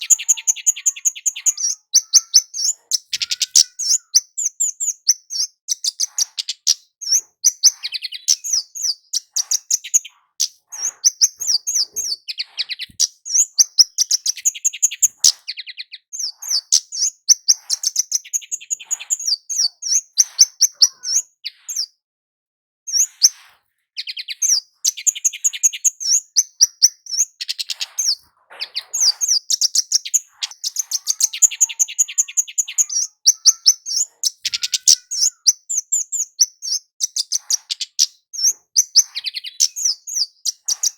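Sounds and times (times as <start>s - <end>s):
bird sharp high chips: 0.0s - 6.8s, 24.9s - 38.0s.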